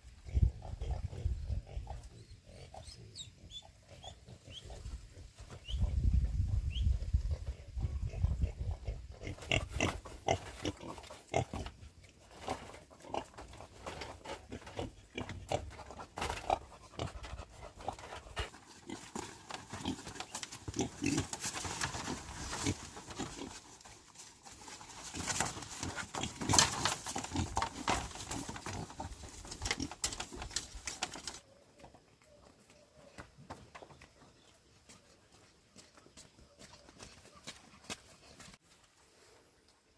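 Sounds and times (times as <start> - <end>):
pigs grunting: 7.4 - 23.6.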